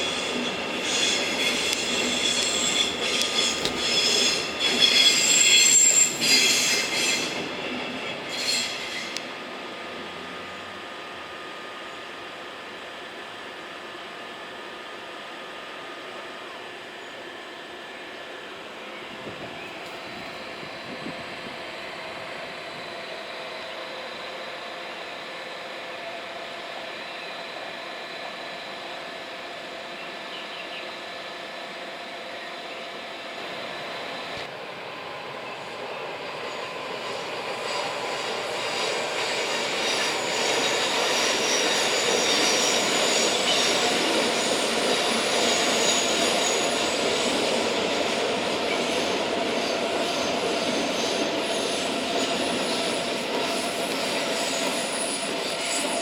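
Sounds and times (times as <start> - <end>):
train rushing rumble: 0.0 - 11.8, 33.4 - 56.0
train wheels squealing on rails: 0.0 - 56.0.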